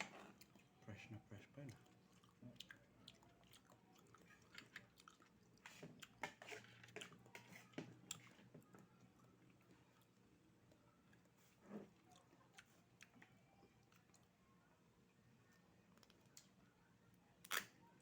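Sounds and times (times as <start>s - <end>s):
chewing oysters: 0.2s - 14.4s.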